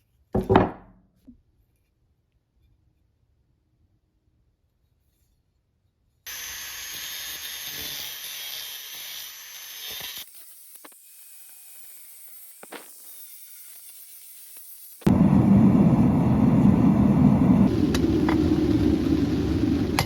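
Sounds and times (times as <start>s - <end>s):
loud low rushing noise: 15.1s - 20.0s.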